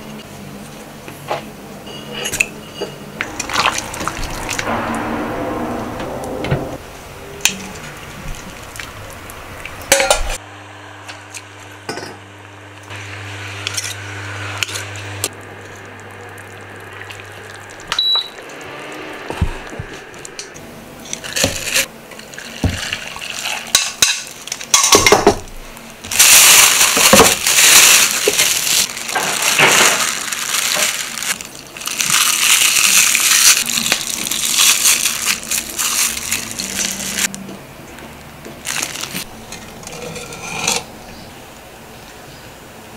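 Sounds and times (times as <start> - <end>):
induction cooktop hum: 0.0 - 42.9
plastic wrap crinkling: 26.1 - 37.3, 38.6 - 39.3.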